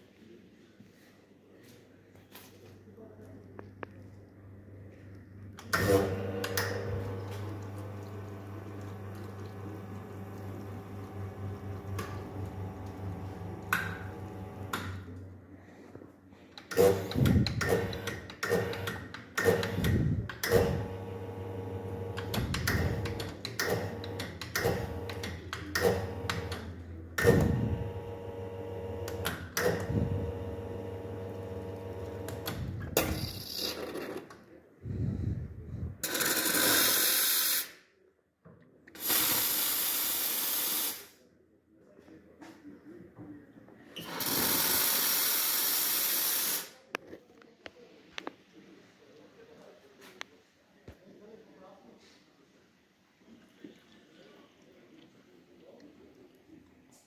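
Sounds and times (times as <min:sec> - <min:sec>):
espresso machine pump hum: 0:06.1 - 0:14.7, 0:20.8 - 0:23.2, 0:25.9 - 0:26.5, 0:27.4 - 0:32.8.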